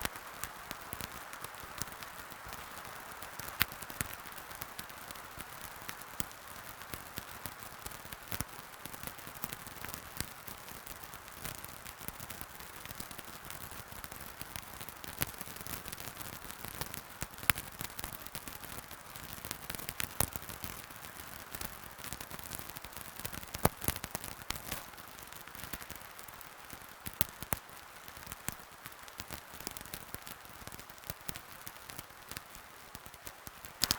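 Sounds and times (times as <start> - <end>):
soft hiss: 0.0 - 33.9
wood fire crackling: 0.0 - 33.9
sharp fire pops: 23.3 - 26.0, 29.2 - 33.9.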